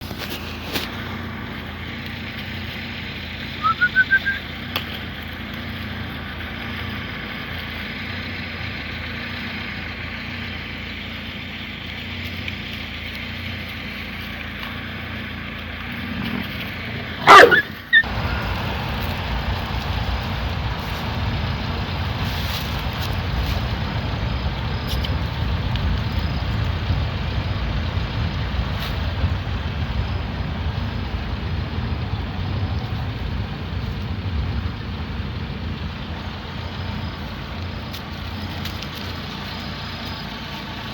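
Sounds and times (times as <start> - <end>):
low rumble: 12.7 - 40.9
dog barking: 17.2 - 18.0
dog yelping: 17.2 - 18.1.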